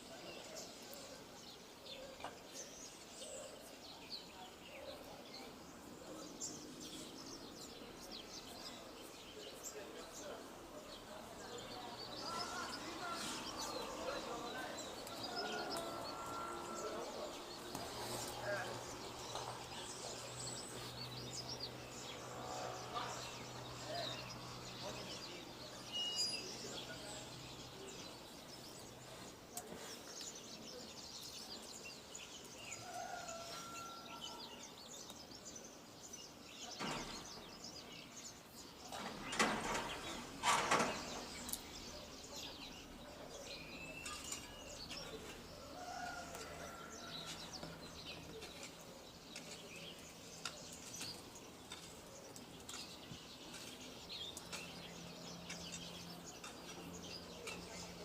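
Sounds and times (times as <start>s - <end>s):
birds chirping and whistling: 11.6s - 29.2s.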